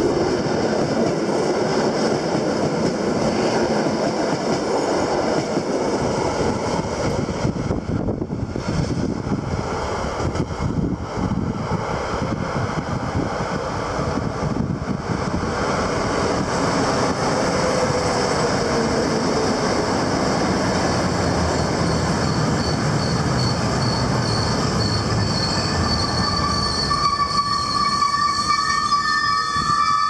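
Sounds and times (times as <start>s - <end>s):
train wheel and rail noise: 0.0s - 30.0s
high-pitched whistling tone: 21.2s - 30.0s.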